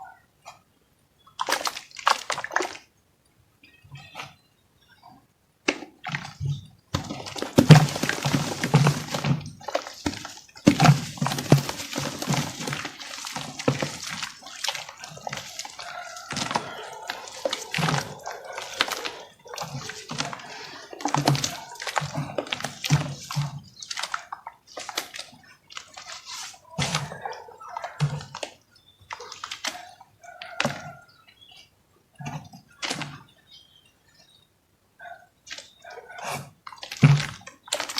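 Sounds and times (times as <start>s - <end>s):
wet squelches and splashes: 1.3s - 2.9s, 5.7s - 33.3s, 35.5s - 37.9s
dry chunks crackling when crushed: 6.9s - 25.0s.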